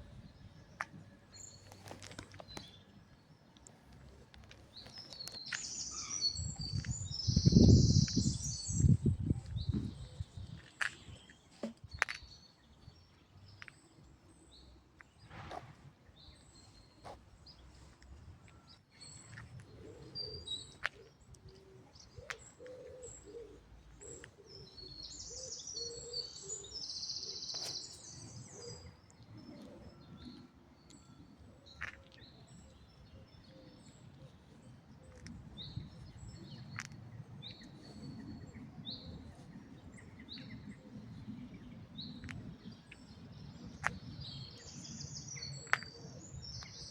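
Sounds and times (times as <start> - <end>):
birds chirping and calling: 4.4 - 12.4, 19.0 - 31.1.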